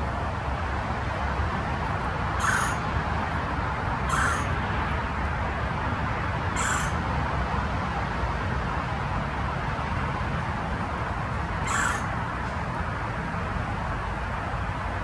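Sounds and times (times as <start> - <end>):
short bird calls: 2.4 - 2.8, 4.1 - 4.5, 6.6 - 7.0, 11.6 - 12.1.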